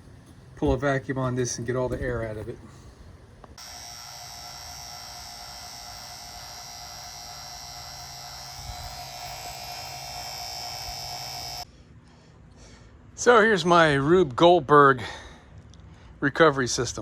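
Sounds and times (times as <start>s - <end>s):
vacuum pump humming and whining: 3.6s - 11.7s.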